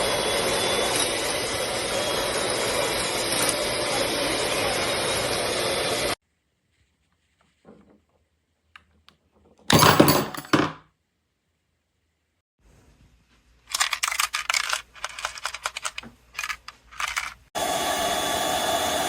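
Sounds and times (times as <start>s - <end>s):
irregular clattering and clicking: 13.7s - 17.5s.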